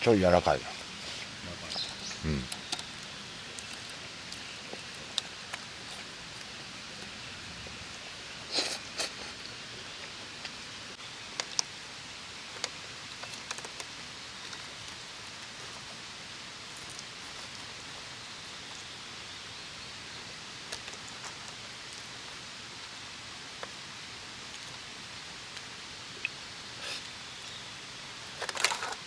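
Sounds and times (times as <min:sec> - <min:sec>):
soft outdoor background hiss: 0:00.0 - 0:29.0
small sharp clicks and crackles: 0:11.3 - 0:11.8, 0:12.5 - 0:15.9, 0:28.3 - 0:29.0.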